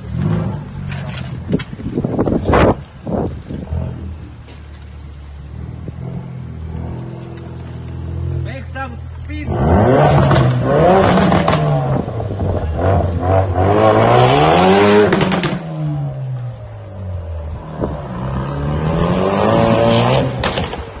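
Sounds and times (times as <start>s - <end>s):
sharp exhaust cracks: 3.5s - 18.6s
car engine accelerating hard: 9.4s - 16.4s, 17.5s - 20.8s.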